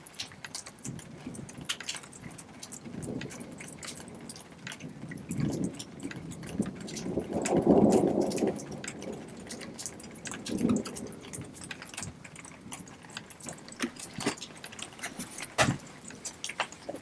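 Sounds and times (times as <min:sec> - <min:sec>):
water dripping: 0:00.0 - 0:17.0.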